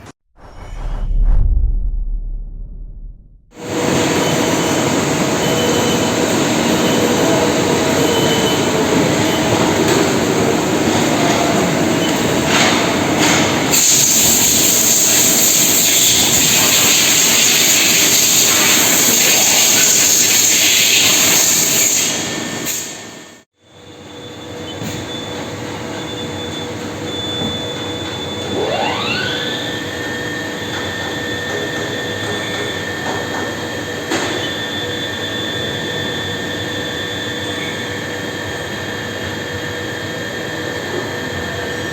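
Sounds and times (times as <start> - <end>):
workshop machinery running: 3.6 - 41.9
lathe spindle whine: 26.0 - 41.9.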